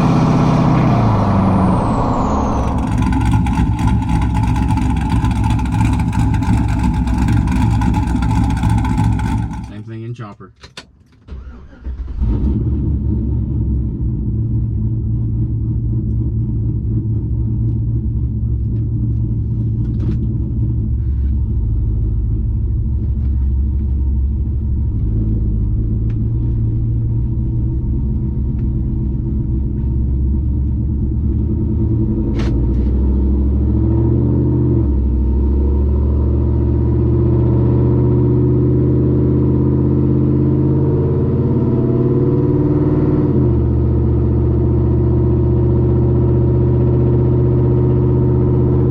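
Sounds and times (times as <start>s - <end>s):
pickup truck engine running: 2.5s - 10.0s.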